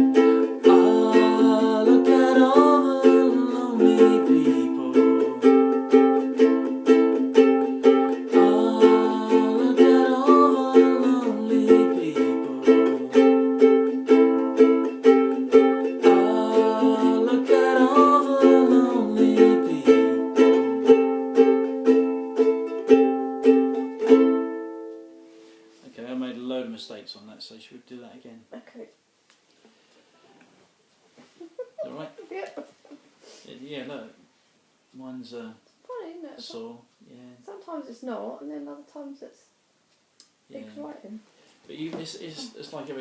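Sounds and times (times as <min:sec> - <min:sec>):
ukulele strumming chords: 0:00.0 - 0:25.8.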